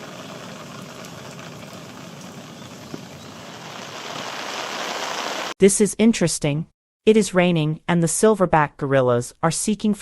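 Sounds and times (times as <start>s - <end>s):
rain on foliage: 0.0s - 5.6s.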